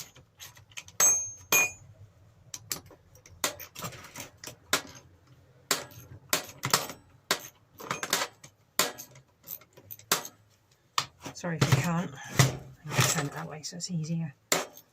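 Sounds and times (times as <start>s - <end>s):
spanner clinking on nuts: 0.7s - 1.9s.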